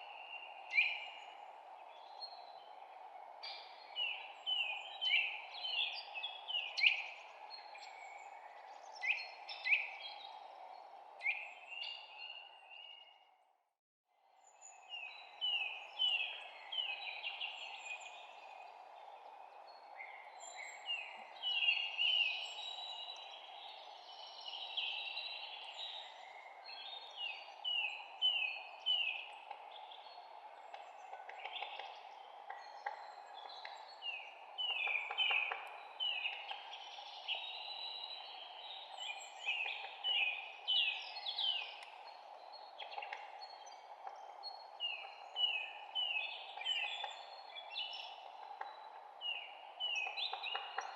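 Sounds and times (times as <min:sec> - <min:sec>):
songbirds chirping and singing: 0:14.4 - 0:50.9.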